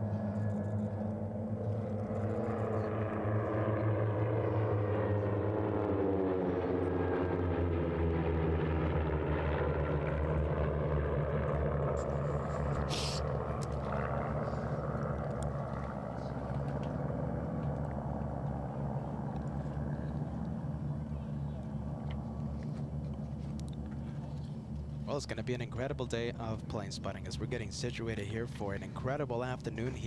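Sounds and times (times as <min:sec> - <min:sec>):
propeller airplanes flying overhead: 0:00.0 - 0:30.0
short hiss: 0:12.9 - 0:13.2.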